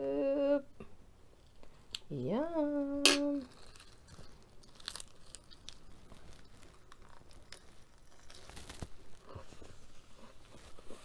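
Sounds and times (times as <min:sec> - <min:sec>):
person chewing crisp lettuce: 0:03.4 - 0:11.0.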